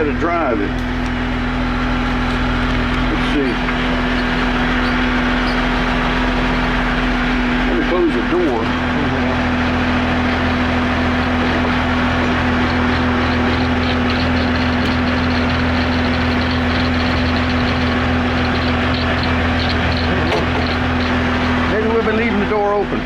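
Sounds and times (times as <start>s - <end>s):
wheel loader diesel engine idling: 0.0s - 23.0s
faint fast high ticking: 9.9s - 21.8s.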